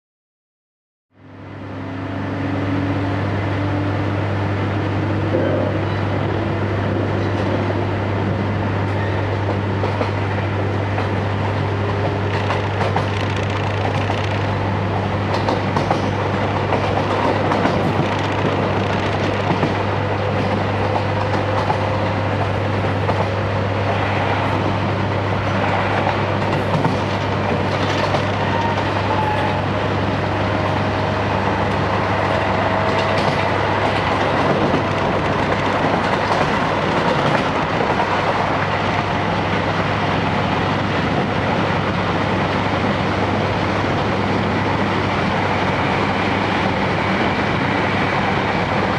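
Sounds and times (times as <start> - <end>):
train rumble and rail noise: 1.1 - 48.9.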